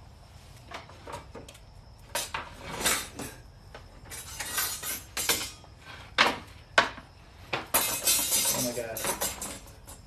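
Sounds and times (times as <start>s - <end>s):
hard items clattering: 7.6s - 10.0s.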